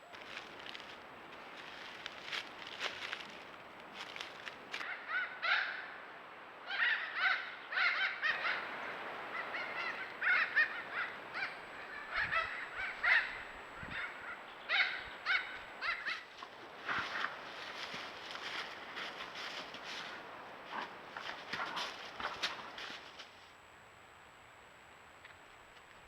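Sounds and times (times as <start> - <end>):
birds calling: 6.7 - 20.3.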